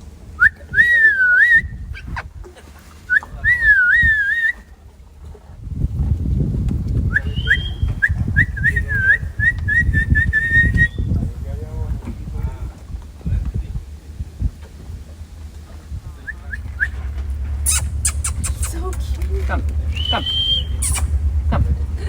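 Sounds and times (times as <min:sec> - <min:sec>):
low rumble: 0:00.0 - 0:22.0
person whistling: 0:00.4 - 0:01.8, 0:03.1 - 0:04.6, 0:07.1 - 0:11.0, 0:19.9 - 0:21.2.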